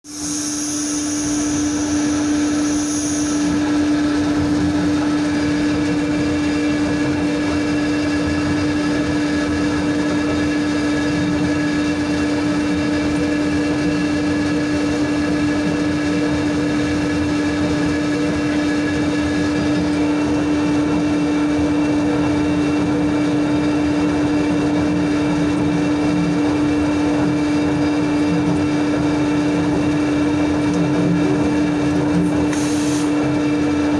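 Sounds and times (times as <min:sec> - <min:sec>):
high whine: 0:00.0 - 0:07.9
sawmill machinery humming: 0:00.0 - 0:33.9.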